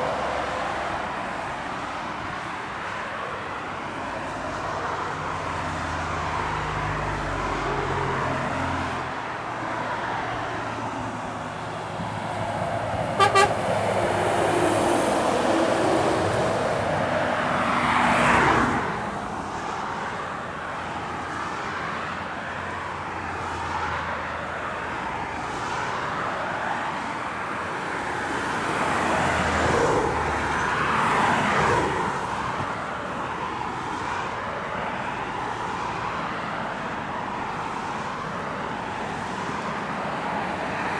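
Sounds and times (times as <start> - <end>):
vehicles passing by: 0.0 - 40.9
truck horn toots: 13.1 - 13.7.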